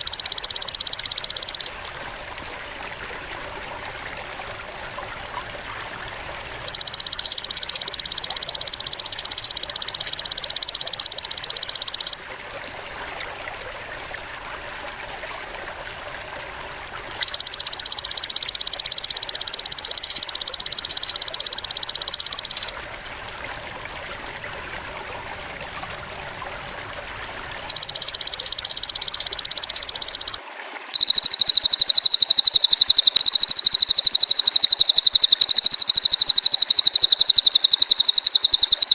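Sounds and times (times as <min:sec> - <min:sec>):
high buzzing insect trills: 0:00.0 - 0:01.7, 0:17.2 - 0:22.7, 0:31.0 - 0:38.9
higher bird trill: 0:00.0 - 0:01.8, 0:06.6 - 0:12.2, 0:17.2 - 0:22.7, 0:27.7 - 0:30.4, 0:31.0 - 0:38.9
stream trickling: 0:00.0 - 0:38.9.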